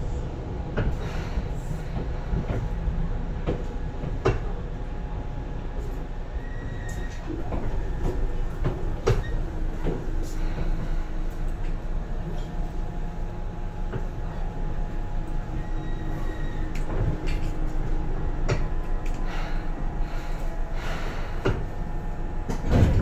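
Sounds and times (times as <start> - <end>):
train interior rumble: 0.0 - 23.0
clunks and knocks: 7.1 - 10.7, 22.4 - 23.0.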